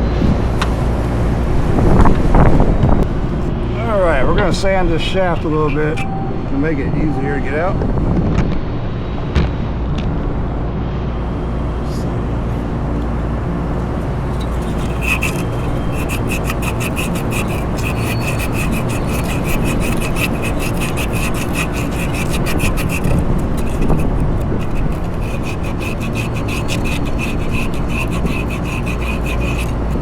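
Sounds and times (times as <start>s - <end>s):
sandpaper rubbing on metal shaft: 4.4s - 6.1s, 14.3s - 30.0s.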